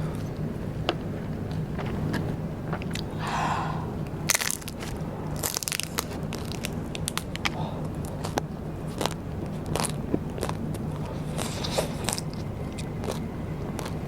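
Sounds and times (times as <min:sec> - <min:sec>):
crunching rice paper: 0:04.3 - 0:14.0.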